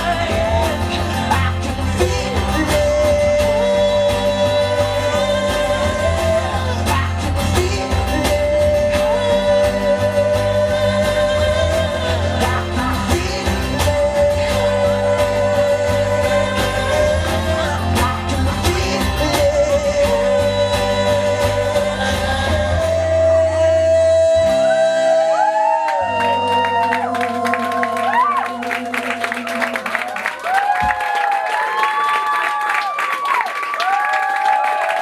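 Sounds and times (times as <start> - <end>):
person singing: 0.0 - 30.6
live rock band: 0.0 - 31.1
crowd whooping and cheering: 23.1 - 35.0.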